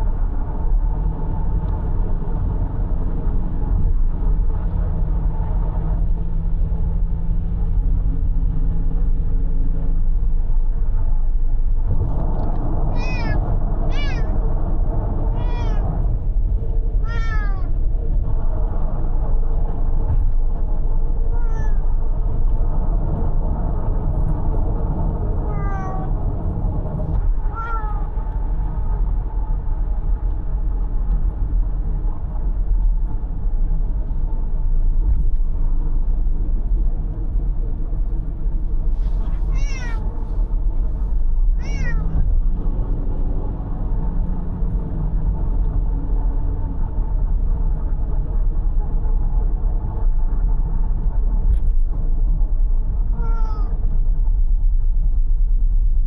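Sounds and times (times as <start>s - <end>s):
road and engine rumble: 0.0s - 56.0s
cat meowing: 12.9s - 14.4s, 15.3s - 16.0s, 17.0s - 17.8s, 21.3s - 21.9s, 25.4s - 26.2s, 27.4s - 28.1s, 39.0s - 40.4s, 41.6s - 42.3s, 53.1s - 53.8s.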